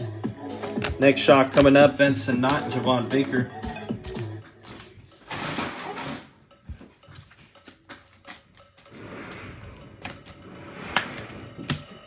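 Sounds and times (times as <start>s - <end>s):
cards rustling: 0.0s - 9.0s.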